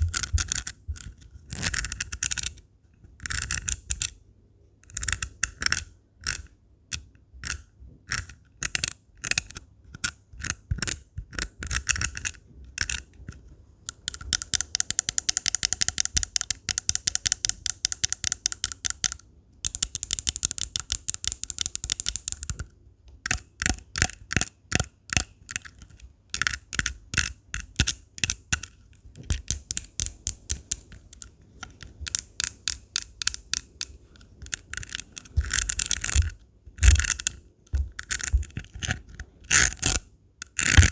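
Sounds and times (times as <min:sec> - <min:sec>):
scratching gems: 0:29.3 - 0:40.9.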